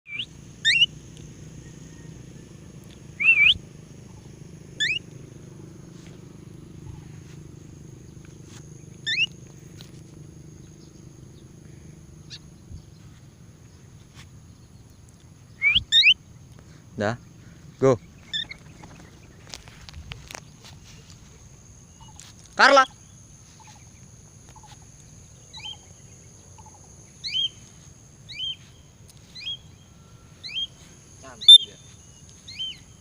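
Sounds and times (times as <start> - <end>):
budgerigar chirping: 0.1 - 1.0, 3.0 - 5.1, 9.0 - 9.4, 12.2 - 12.6, 15.5 - 16.2, 18.1 - 19.0, 25.4 - 27.6, 28.3 - 28.6, 29.2 - 29.7, 30.4 - 30.8, 31.4 - 31.9, 32.5 - 32.9.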